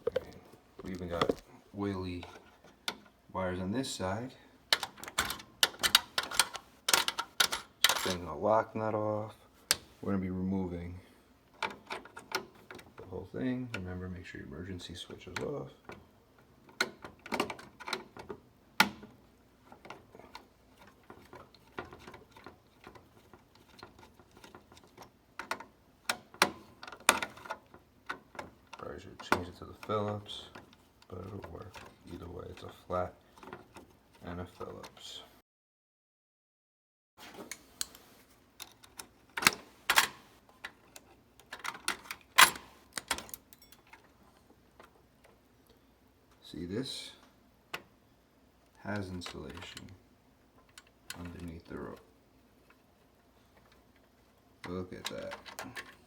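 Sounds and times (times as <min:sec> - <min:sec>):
hand tools clicking and clacking: 0:00.0 - 0:01.4, 0:54.6 - 0:56.0.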